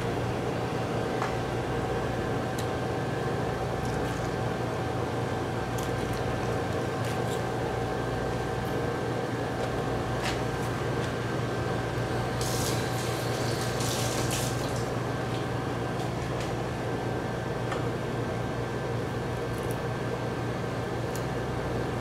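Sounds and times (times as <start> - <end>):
kitchen machine hum: 0.0 - 22.0
running water hissing: 12.4 - 14.8.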